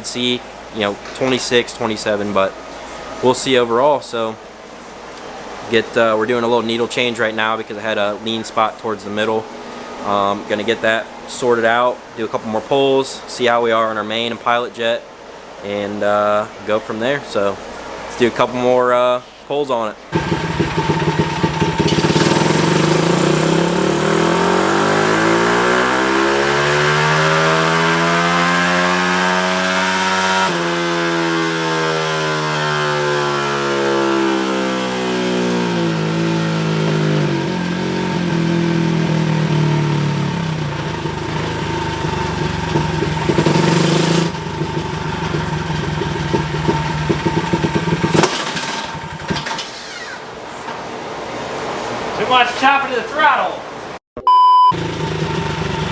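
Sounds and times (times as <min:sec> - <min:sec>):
motorbike engine revving: 0:20.1 - 0:50.5, 0:54.8 - 0:55.9.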